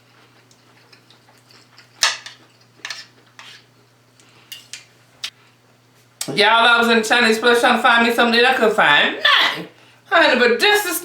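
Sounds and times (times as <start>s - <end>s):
utensils scraping a dish: 2.0s - 3.7s.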